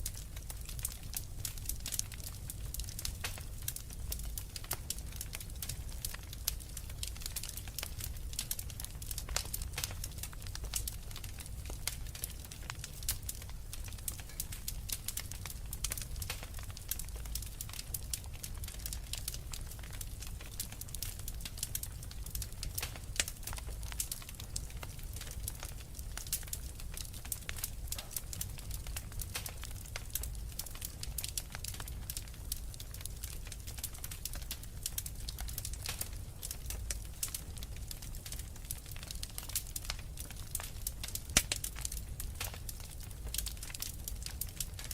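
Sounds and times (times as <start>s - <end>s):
low rumble of flame: 0.0s - 44.9s
wood fire crackling: 0.0s - 44.9s.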